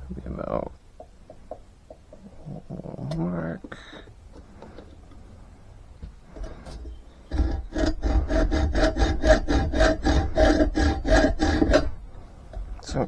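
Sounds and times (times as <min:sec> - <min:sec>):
hand saw cutting wood: 0:07.3 - 0:12.1.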